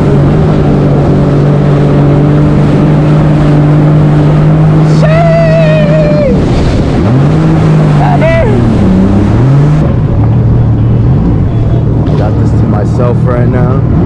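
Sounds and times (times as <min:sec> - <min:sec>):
jet ski engine running: 0:00.0 - 0:14.0.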